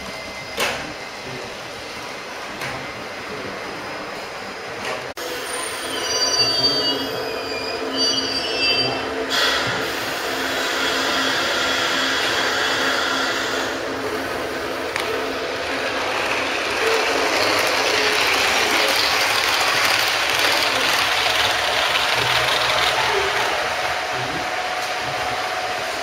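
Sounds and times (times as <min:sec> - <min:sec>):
model trains whirring on track: 0:09.2 - 0:26.0.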